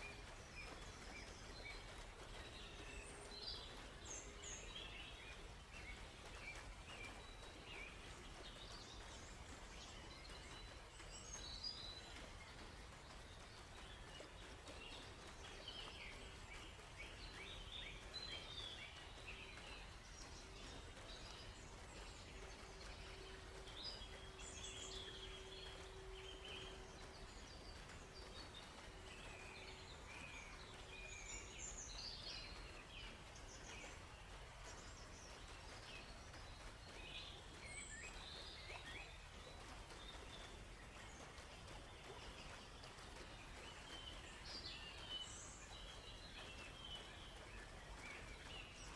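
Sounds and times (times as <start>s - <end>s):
faint background hiss: 0.0s - 48.9s
small birds chirping: 0.0s - 48.9s.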